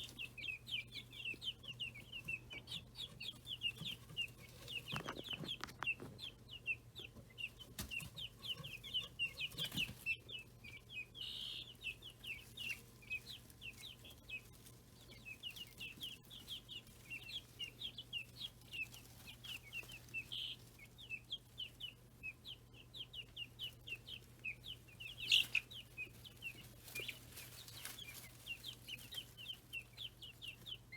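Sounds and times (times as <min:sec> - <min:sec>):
chicks peeping: 0:00.0 - 0:30.9.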